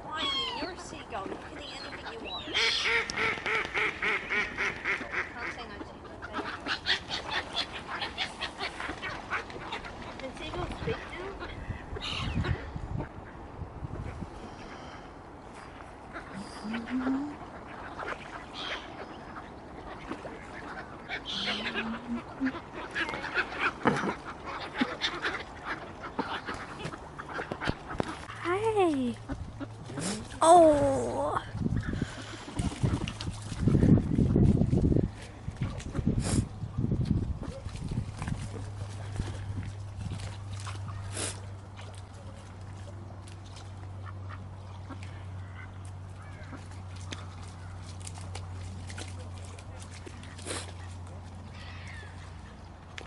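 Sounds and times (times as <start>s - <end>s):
water birds calling: 0.0s - 53.0s
ducks quacking: 0.1s - 13.4s, 16.0s - 28.5s, 43.8s - 47.9s.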